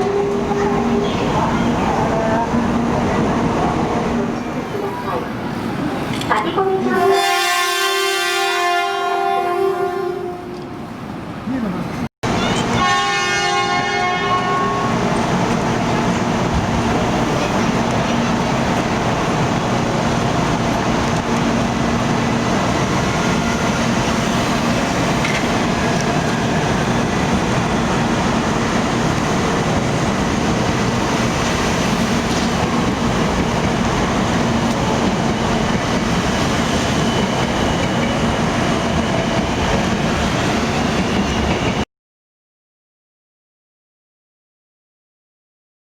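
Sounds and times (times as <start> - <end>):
train rushing past: 0.0 - 41.8
train horn blast: 6.3 - 10.8, 12.6 - 15.1.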